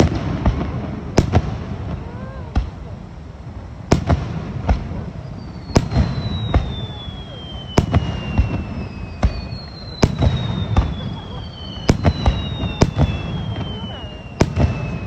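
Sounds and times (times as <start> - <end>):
descending firework whistles: 3.9 - 15.0
firework shells bursting: 3.9 - 15.0.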